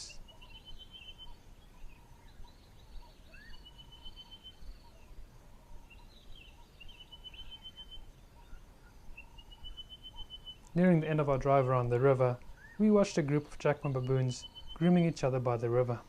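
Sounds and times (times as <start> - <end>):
bird rapid trill: 0.0 - 11.9, 12.6 - 15.2
birds chattering calls: 0.0 - 16.0.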